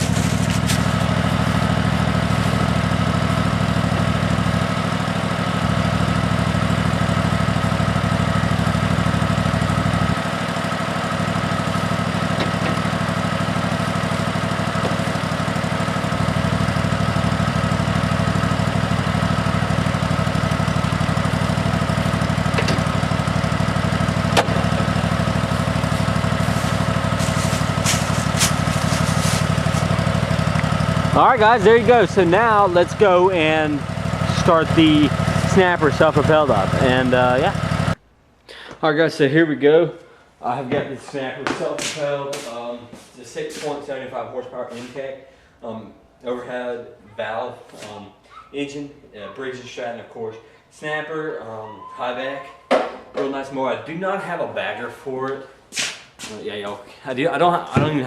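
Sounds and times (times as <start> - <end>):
mower engine idling: 0.0 - 38.0
sharp knocks and clatter: 12.3 - 12.9, 22.5 - 22.9, 24.3 - 24.8.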